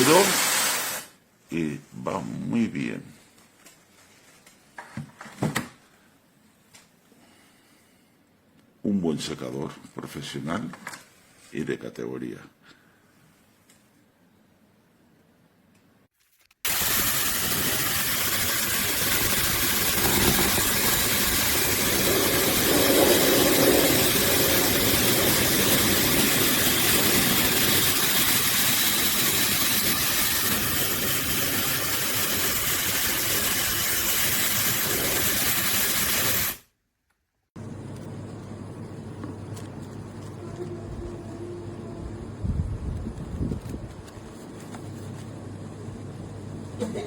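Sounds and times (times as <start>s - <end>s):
hair dryer running: 0.0s - 1.1s, 16.7s - 32.7s.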